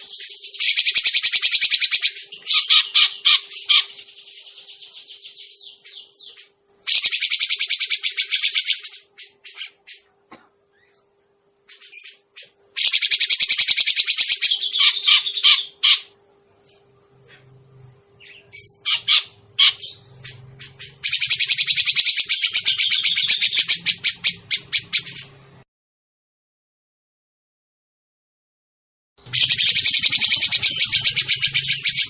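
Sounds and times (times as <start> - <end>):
bird chattering call: 0.0 - 4.2, 4.9 - 10.1, 11.7 - 16.2, 18.2 - 25.3, 29.3 - 32.0.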